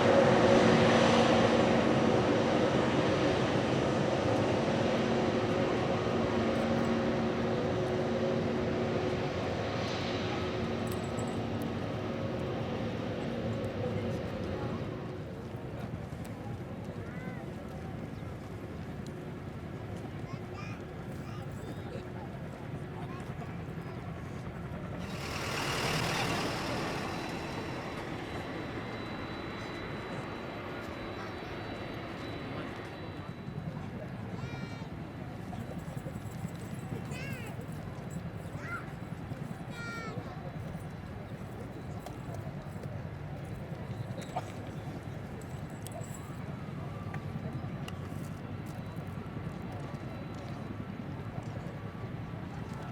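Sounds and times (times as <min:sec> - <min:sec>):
jet engine starting up: 0:00.0 - 0:15.4, 0:24.4 - 0:34.8
jet engines humming: 0:00.0 - 0:52.9.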